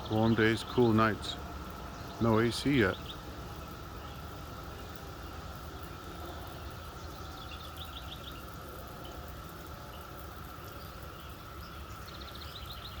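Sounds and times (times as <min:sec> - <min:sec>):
cicada chorus: 0:00.0 - 0:13.0
songbird singing: 0:00.0 - 0:13.0.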